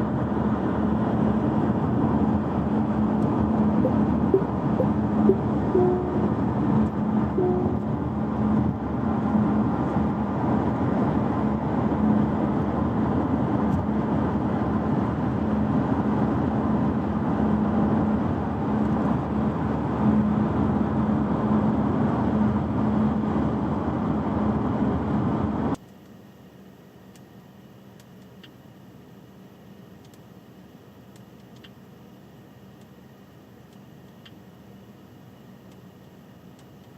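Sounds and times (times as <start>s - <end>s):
car interior road noise: 0.0s - 25.8s.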